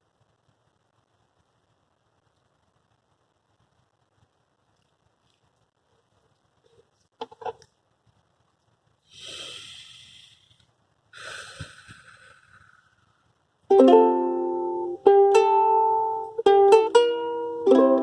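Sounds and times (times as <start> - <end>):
soft hissy noises: 0.0 - 18.0
ukulele strummed chords: 13.7 - 18.0.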